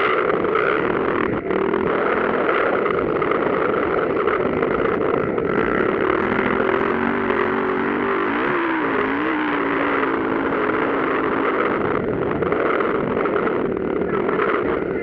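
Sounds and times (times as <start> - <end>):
motocross engines revving: 0.0 - 15.0.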